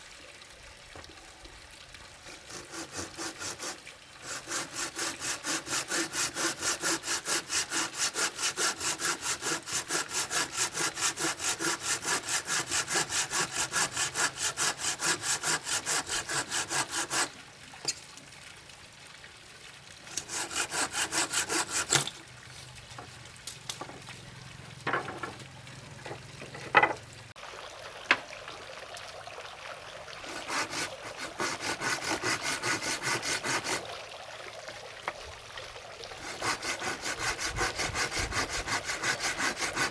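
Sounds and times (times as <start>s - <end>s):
handsaw cutting wood: 2.2s - 17.3s, 20.1s - 22.2s, 30.2s - 33.8s, 36.2s - 39.9s
knocks on timber: 26.1s - 27.0s.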